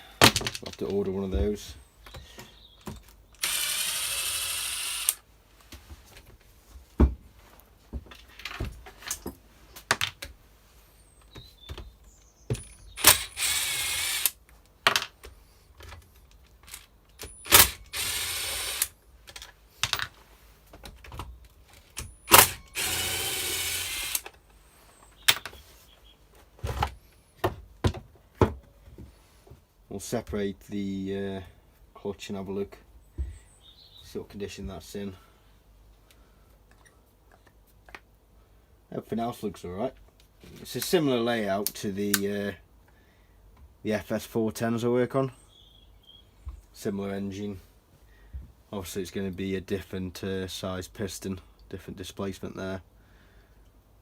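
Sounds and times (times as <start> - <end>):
cordless power driver whirring: 3.4 - 5.2, 13.0 - 14.4, 17.4 - 19.0, 22.3 - 24.3.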